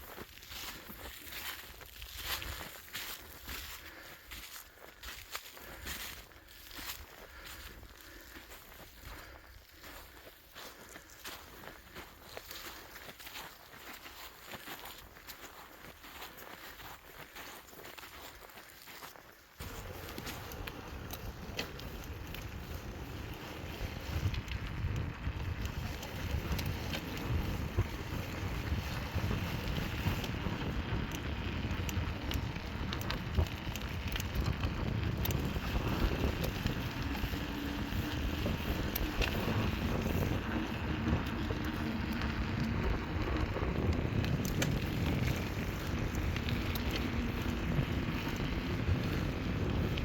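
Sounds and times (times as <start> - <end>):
footsteps on dry leaves: 0.0 - 31.8, 32.4 - 49.4
wind buffeting microphone: 19.6 - 50.0.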